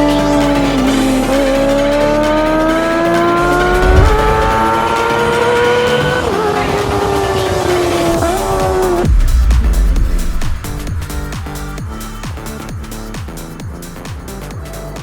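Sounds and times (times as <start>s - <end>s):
motorcycle engine revving: 0.6s - 12.5s
electronic music: 8.2s - 14.2s.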